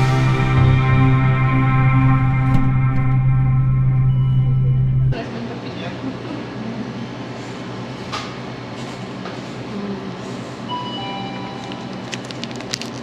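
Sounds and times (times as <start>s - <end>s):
faint tones and clicks: 0.0s - 5.2s
vehicle rumbling in motion: 0.0s - 5.2s.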